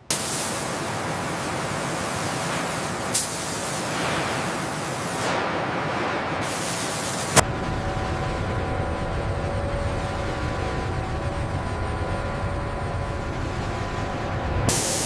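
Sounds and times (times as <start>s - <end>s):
loud spraying hiss: 0.1s - 5.2s, 14.7s - 15.0s.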